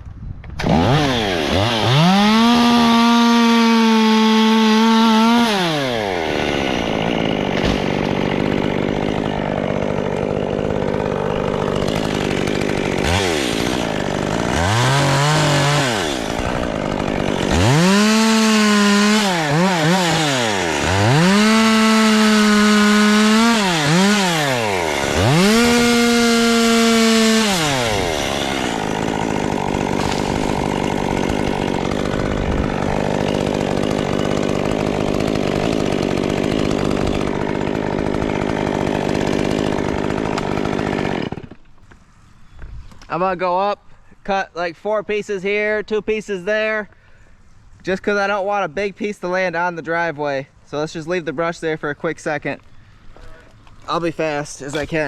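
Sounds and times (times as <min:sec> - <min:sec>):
chainsaw revving: 0:00.6 - 0:41.6.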